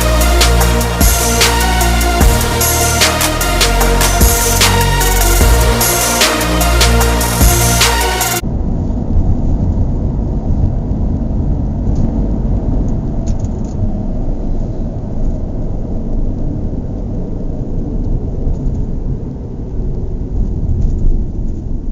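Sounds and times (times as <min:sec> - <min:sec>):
low rumbling noise: 0:00.0 - 0:13.2.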